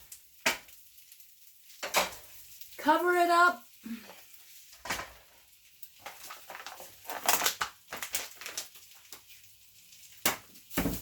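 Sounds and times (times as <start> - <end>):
crinkling: 3.7 - 11.0.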